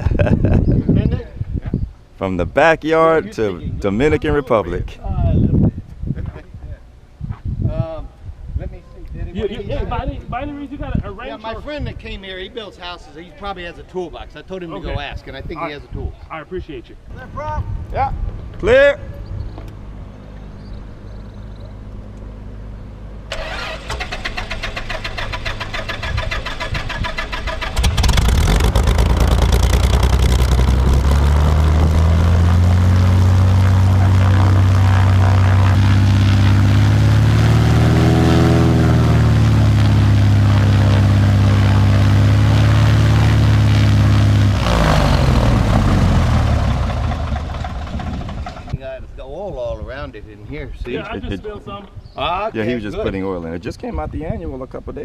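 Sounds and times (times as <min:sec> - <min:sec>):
starter cranking: 0:23.3 - 0:32.1
aircraft engine running: 0:23.3 - 0:48.7.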